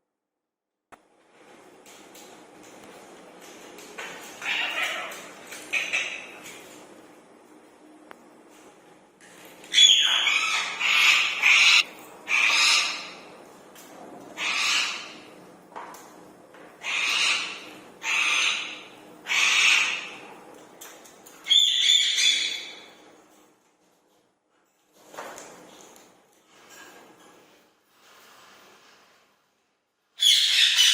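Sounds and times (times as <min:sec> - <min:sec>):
parakeet shrill squawks: 0:09.7 - 0:13.2, 0:14.4 - 0:15.2, 0:16.8 - 0:20.1, 0:21.5 - 0:22.9, 0:30.2 - 0:30.9.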